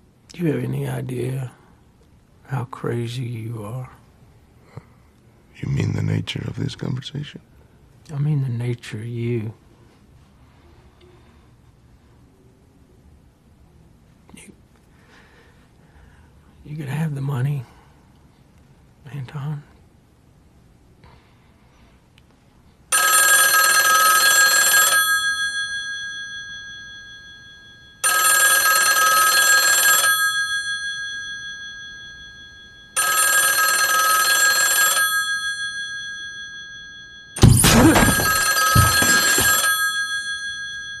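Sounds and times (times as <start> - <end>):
telephone ringing: 22.9 - 41.0
sudden low thud: 37.4 - 39.2.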